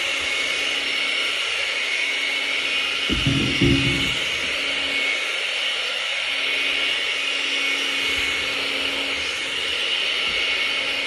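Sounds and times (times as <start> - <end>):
hair dryer blowing: 0.0 - 11.0
low thump: 3.1 - 4.5.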